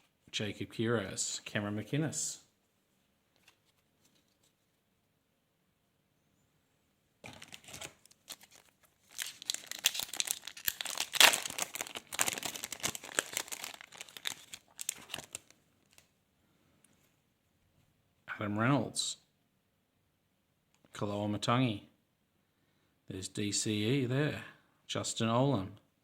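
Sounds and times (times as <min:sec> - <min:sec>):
wrapper crackling and tearing: 0:07.2 - 0:16.1.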